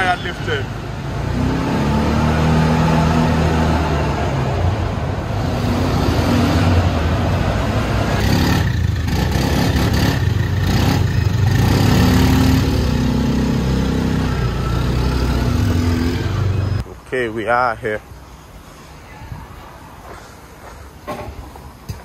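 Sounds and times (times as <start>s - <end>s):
quad bike engine revving: 1.2s - 4.4s, 5.5s - 16.8s.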